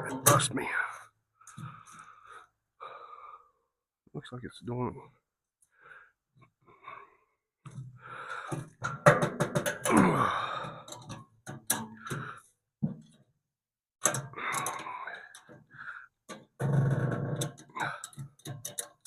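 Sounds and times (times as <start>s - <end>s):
creak falling in pitch: 16.6s - 17.8s.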